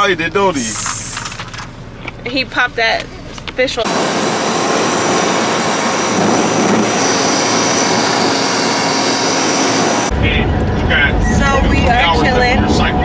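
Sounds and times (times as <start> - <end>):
faint high whine: 3.9 - 10.1
loud steady rushing hiss: 3.9 - 10.1.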